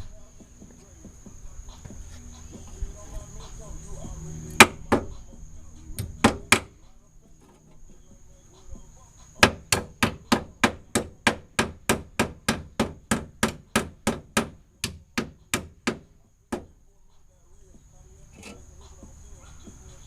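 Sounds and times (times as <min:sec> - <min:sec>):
hammer striking: 0:04.6 - 0:05.2, 0:06.0 - 0:06.8, 0:09.4 - 0:16.7.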